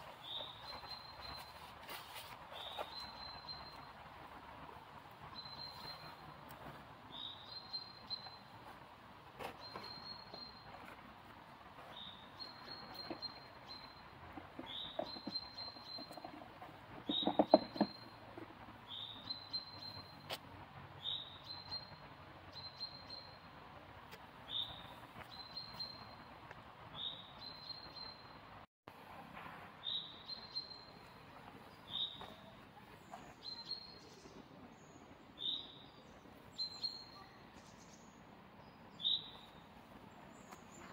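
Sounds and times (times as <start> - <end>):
cluster of knocks: 14.4 - 18.1.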